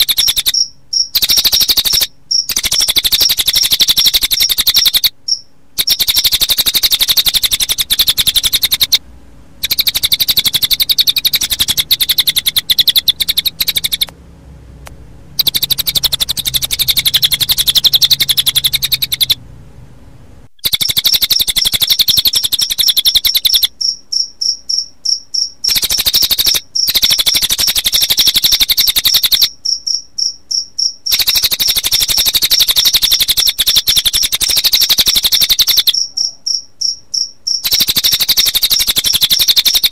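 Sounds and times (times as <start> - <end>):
pulsing cricket chirp: 0.0 - 9.0, 9.6 - 14.1, 15.4 - 19.4, 20.6 - 39.9
rapid high bird trills: 9.6 - 14.1, 15.4 - 19.4.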